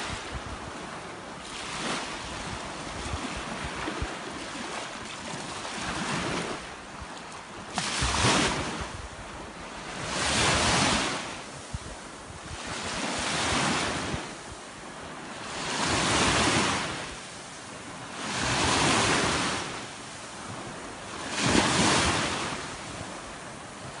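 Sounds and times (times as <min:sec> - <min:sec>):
wind buffeting microphone: 0:00.0 - 0:17.3
sea waves breaking: 0:00.0 - 0:24.0.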